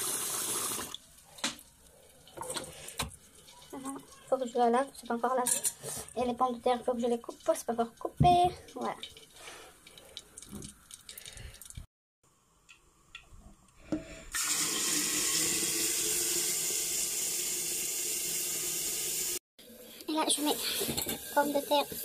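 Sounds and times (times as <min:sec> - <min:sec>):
onion and garlic sizzling in oil: 0:01.0 - 0:11.5, 0:15.8 - 0:22.0.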